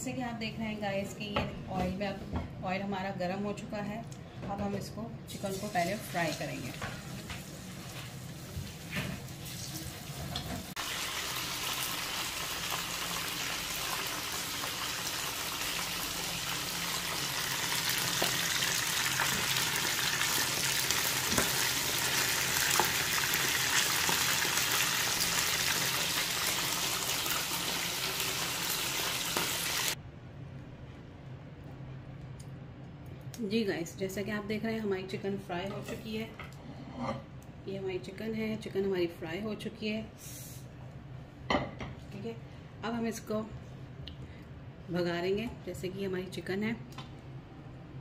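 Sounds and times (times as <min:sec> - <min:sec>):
chicken deep-frying in oil: 0:05.3 - 0:30.0.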